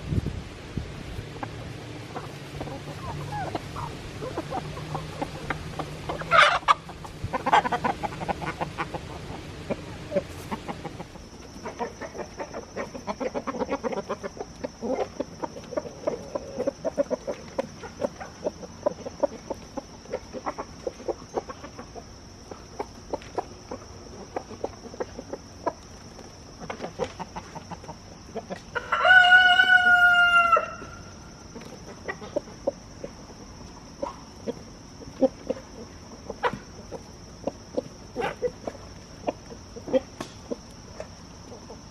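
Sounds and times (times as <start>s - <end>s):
chickens clucking: 0.8s - 41.9s
chicken squawks: 2.1s - 19.5s, 28.4s - 32.6s
rooster crowing: 28.8s - 31.2s.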